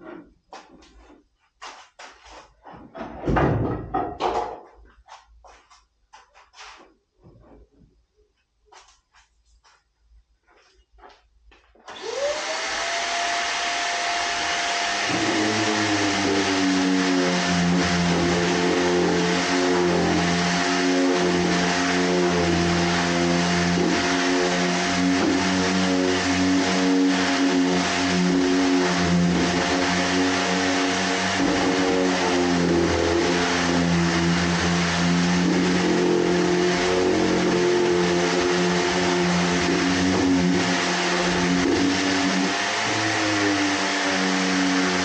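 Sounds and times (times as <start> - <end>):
electric orbital sander on wood: 11.9 - 45.0.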